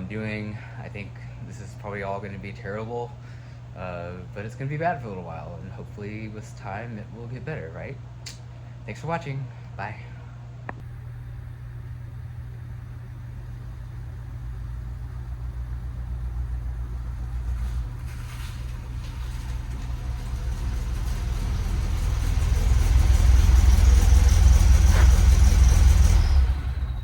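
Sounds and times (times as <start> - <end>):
car engine running: 10.8 - 27.0.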